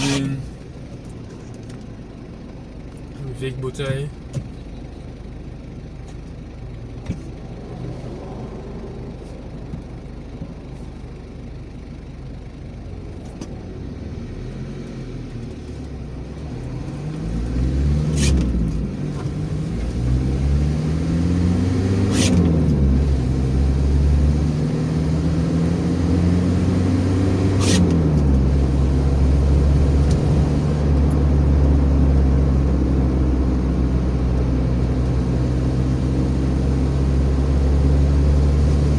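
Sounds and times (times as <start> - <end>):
car engine accelerating: 0.0 - 1.0, 12.9 - 38.9
gear change click: 21.8 - 30.8.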